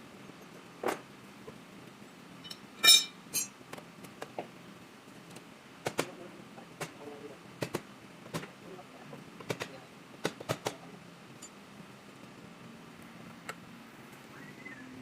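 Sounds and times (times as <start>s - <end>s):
metallic clinks and knocks: 2.4s - 3.5s.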